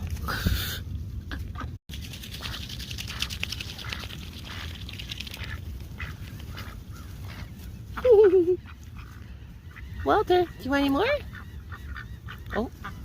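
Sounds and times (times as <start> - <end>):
bills clicking while pecking food: 1.9 - 7.5.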